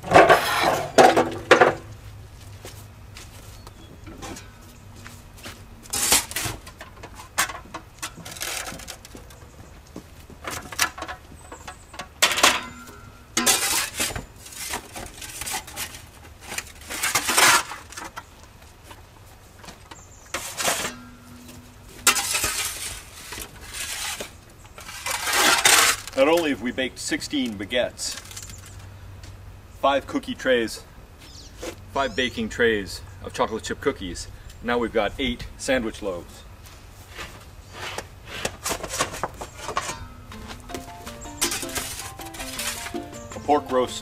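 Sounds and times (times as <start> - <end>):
metal bakeware clattering: 0.0 - 1.8, 10.6 - 14.1, 20.4 - 22.8, 38.8 - 44.0.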